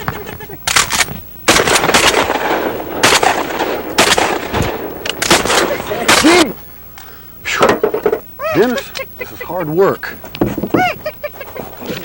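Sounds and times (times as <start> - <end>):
shotgun blasts: 0.7 - 6.6.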